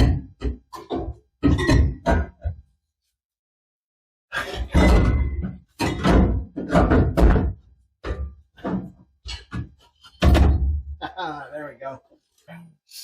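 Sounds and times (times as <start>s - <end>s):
metal clunks and knocks: 0.0s - 2.7s, 4.4s - 11.0s.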